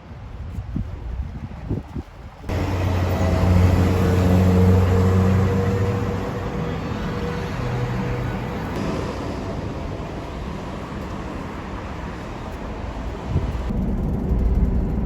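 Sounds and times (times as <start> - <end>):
wind thumps on microphone: 0.0 - 2.5, 8.8 - 15.0
road noise: 0.0 - 15.0
vehicle engine hum: 2.4 - 15.0.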